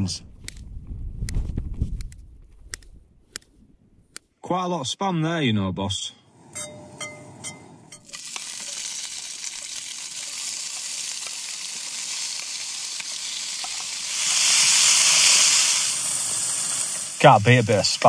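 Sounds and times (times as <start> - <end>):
meat frying in a pan: 8.0 - 18.0.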